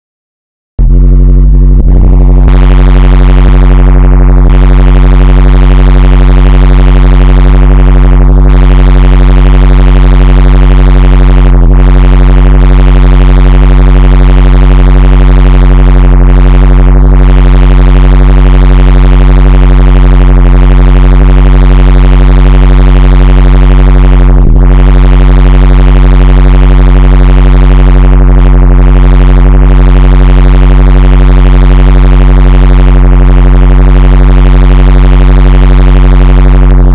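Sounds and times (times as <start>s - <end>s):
distorted low electronic drone: 0.8s - 36.9s.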